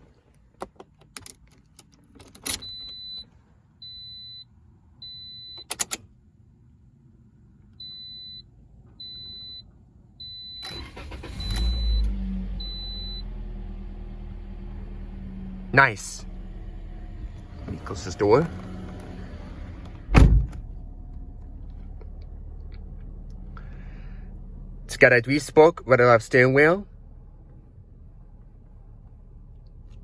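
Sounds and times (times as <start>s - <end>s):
car warning chime beeps: 2.5s - 5.9s, 7.8s - 13.4s
car engine starting and idling: 5.0s - 30.0s.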